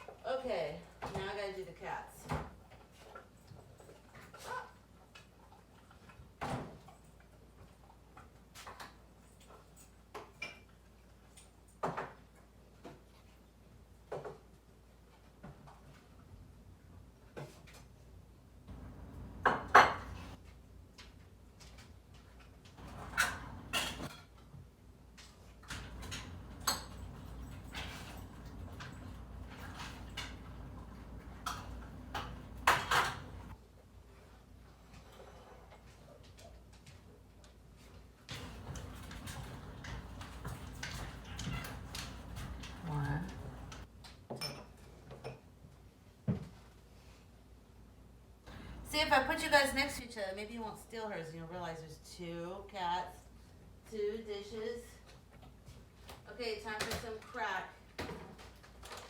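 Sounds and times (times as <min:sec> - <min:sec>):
dishes and cutlery clinking: 0:22.8 - 0:24.4, 0:25.7 - 0:30.6, 0:31.2 - 0:33.6, 0:38.4 - 0:45.5.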